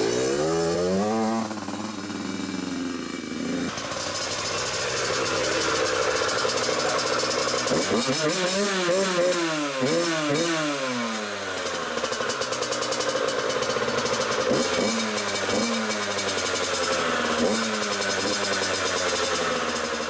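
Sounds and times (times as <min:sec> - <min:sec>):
two-stroke engine revving: 0:00.0 - 0:20.0.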